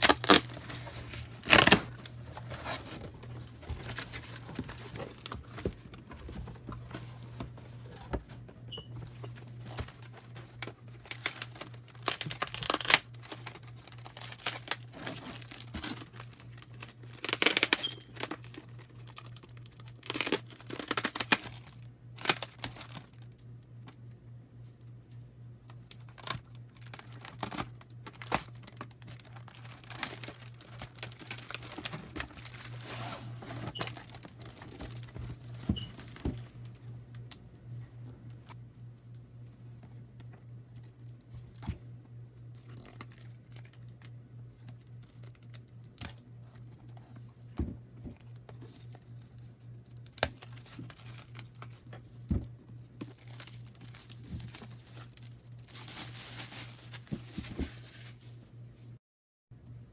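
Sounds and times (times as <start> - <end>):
packaging torn and crinkled: 0.0 - 6.0, 9.3 - 23.4, 25.7 - 36.3, 42.6 - 46.2, 48.2 - 51.9, 53.0 - 58.3
steady low hum: 0.0 - 59.0.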